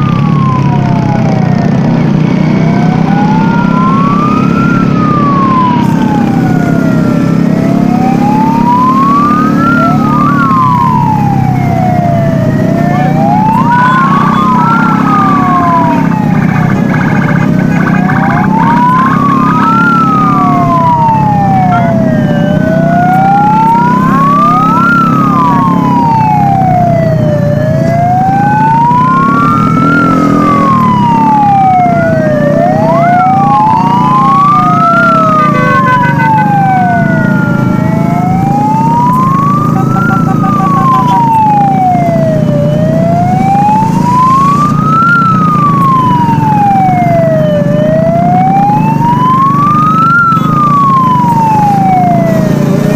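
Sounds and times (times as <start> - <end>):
drone of engines: 0.0 - 52.9
vehicle sirens wailing: 0.0 - 52.9.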